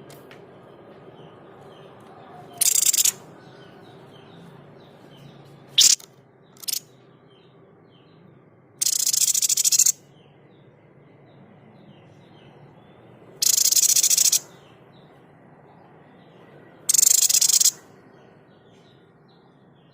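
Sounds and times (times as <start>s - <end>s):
harsh rattling bird calls: 1.7s - 8.2s, 8.8s - 10.7s, 11.8s - 15.2s, 16.8s - 19.9s.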